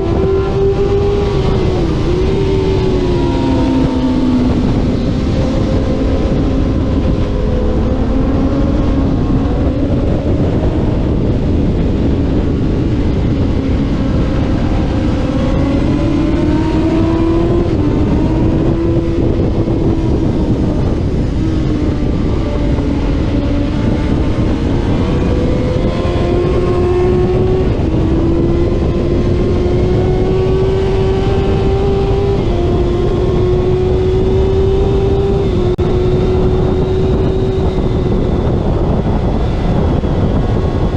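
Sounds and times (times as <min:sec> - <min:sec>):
motorcycle engine upshifting: 0:00.0 - 0:40.9
wind noise: 0:00.0 - 0:40.9.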